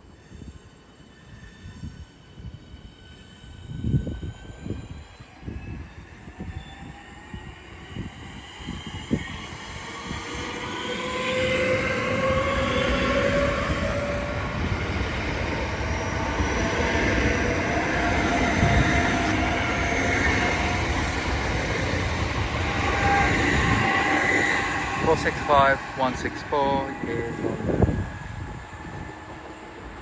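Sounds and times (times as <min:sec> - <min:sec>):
electric train pulling out: 0:00.0 - 0:30.0
traction motor whine: 0:10.9 - 0:30.0.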